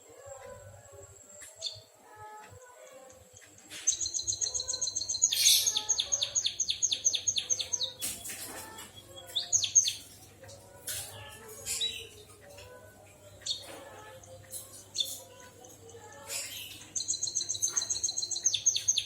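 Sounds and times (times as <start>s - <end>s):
bird trilling song: 3.4s - 10.2s, 13.4s - 19.0s.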